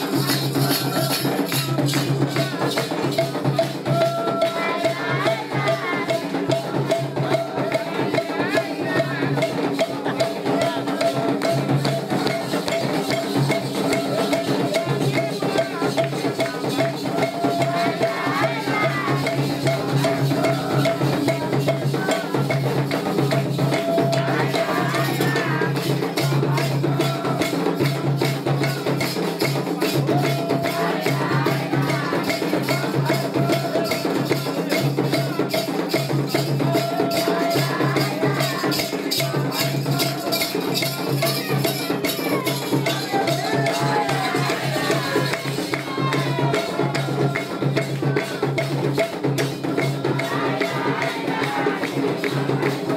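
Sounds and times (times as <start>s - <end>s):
shaker rattles: 0.0s - 3.8s, 29.0s - 45.8s
drums: 0.0s - 52.9s.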